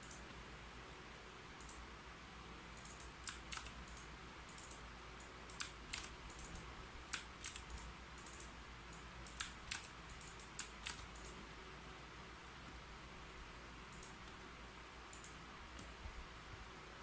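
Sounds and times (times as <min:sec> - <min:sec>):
typing on a keyboard: 0:02.8 - 0:08.5, 0:09.3 - 0:11.4.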